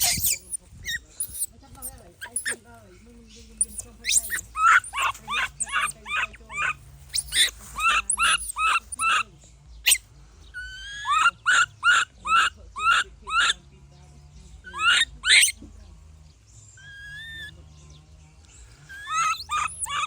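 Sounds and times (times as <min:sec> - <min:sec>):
baby monkey crying: 0:00.0 - 0:02.6, 0:03.6 - 0:09.3, 0:10.6 - 0:13.6, 0:14.6 - 0:15.6, 0:16.8 - 0:17.6, 0:18.9 - 0:20.0.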